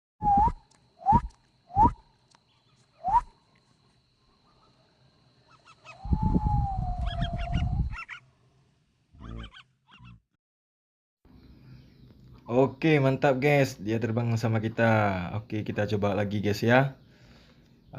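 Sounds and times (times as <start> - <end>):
person whistling: 0.2 - 1.9.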